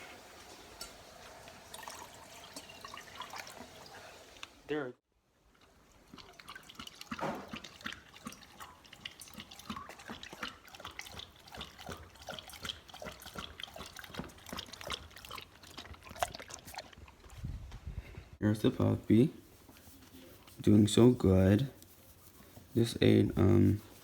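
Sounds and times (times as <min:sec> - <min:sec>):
dog lapping water: 0:01.4 - 0:04.4, 0:05.5 - 0:17.5.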